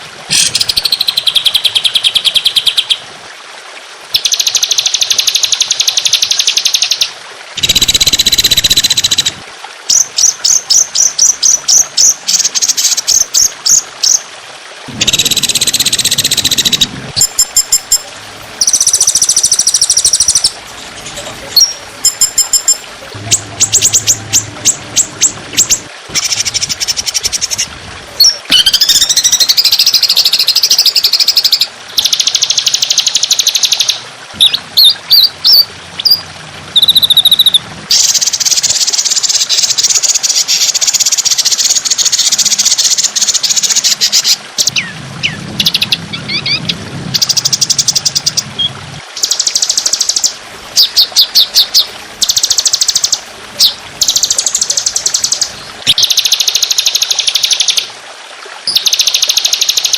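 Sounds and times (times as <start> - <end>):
songbird trills and chattering: 18.6 - 36.2.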